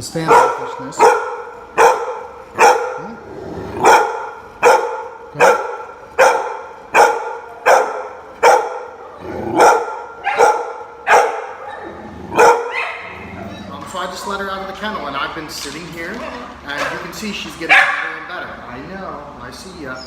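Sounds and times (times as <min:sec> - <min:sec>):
dog barking: 0:00.2 - 0:13.3, 0:17.7 - 0:18.3.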